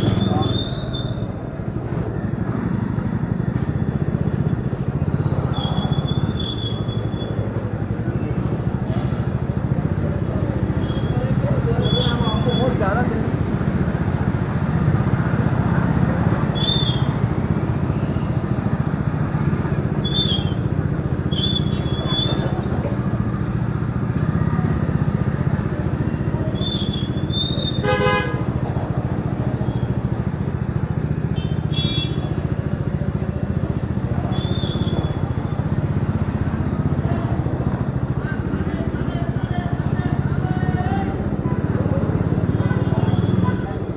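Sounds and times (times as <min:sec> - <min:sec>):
motorcycle engine running: 0:00.0 - 0:43.9
vehicle horn honking: 0:27.7 - 0:28.6, 0:31.4 - 0:32.3, 0:42.5 - 0:43.8.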